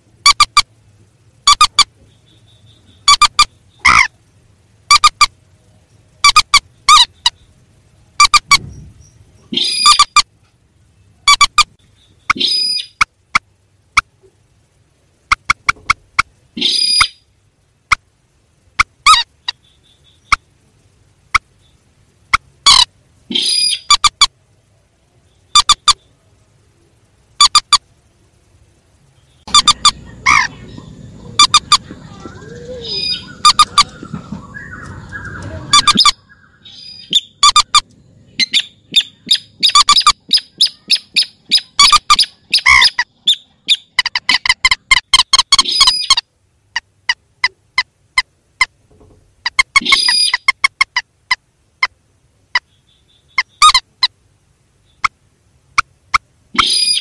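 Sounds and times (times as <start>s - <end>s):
recorded rail bird calls: 0.0s - 57.0s
steady background noise: 0.0s - 57.0s.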